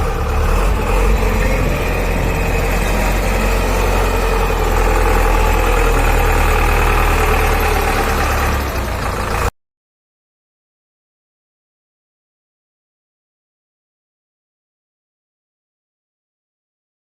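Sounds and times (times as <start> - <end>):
diesel engine running: 0.0 - 9.5.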